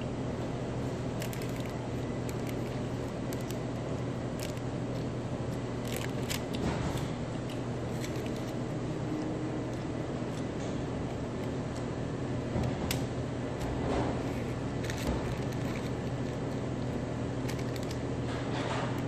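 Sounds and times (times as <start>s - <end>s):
steady low hum: 0.0s - 19.0s
person eating with crunches: 1.0s - 11.9s.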